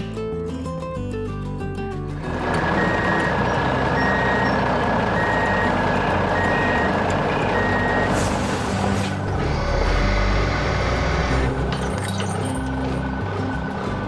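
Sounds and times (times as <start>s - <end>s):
diesel engine running: 2.0s - 14.0s
truck reversing alarm beeping: 2.4s - 11.5s.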